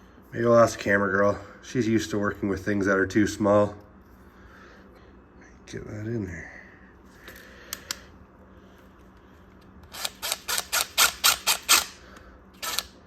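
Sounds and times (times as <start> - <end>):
tool clicking: 9.8 - 12.0, 12.6 - 13.0.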